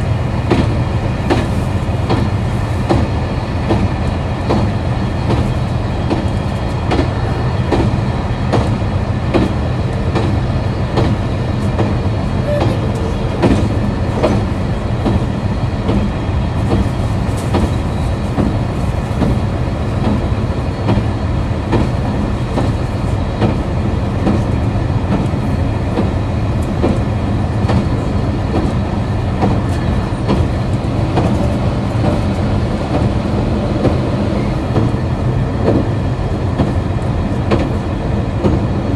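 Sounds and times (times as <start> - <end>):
train diesel engine drone: 0.0 - 38.9.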